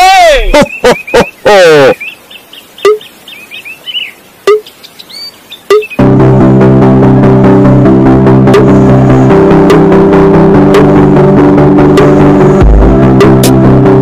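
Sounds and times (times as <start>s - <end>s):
high bird-like chirps: 0.5s - 6.0s
music with a steady beat: 6.0s - 14.0s.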